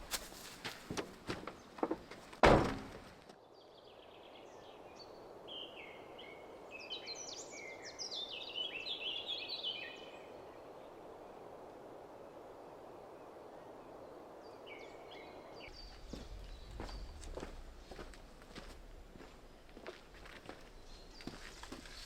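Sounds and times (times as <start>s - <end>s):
faint outdoor hiss: 0.0s - 22.0s
songbirds chirping: 0.0s - 22.0s
sharp knocks: 1.8s - 3.0s.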